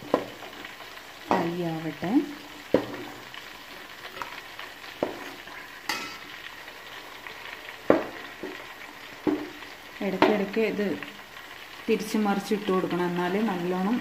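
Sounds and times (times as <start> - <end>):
oil sizzling while deep-frying: 0.0 - 14.0.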